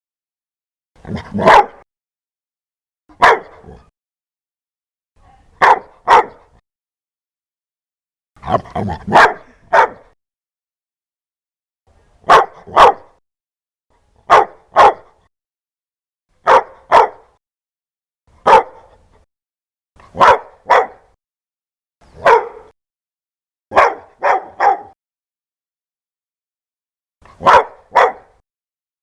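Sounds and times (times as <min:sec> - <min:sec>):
dog barking: 0:01.1 - 0:01.8, 0:03.1 - 0:03.9, 0:05.4 - 0:06.6, 0:08.4 - 0:10.2, 0:12.2 - 0:13.2, 0:14.3 - 0:15.3, 0:16.4 - 0:17.4, 0:18.4 - 0:19.0, 0:20.0 - 0:21.2, 0:22.2 - 0:22.8, 0:23.7 - 0:25.0, 0:27.3 - 0:28.4.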